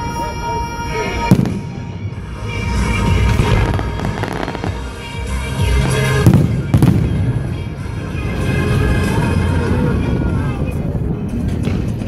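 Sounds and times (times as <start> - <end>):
music: 0.0 - 12.0
fireworks crackling: 0.1 - 7.6
fireworks exploding: 1.2 - 7.6.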